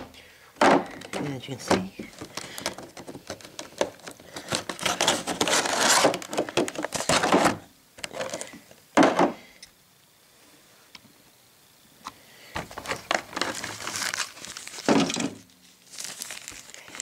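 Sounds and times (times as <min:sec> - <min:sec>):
packaging rustling: 0:00.8 - 0:08.6, 0:12.6 - 0:17.0
small plastic parts clicking: 0:00.9 - 0:07.4.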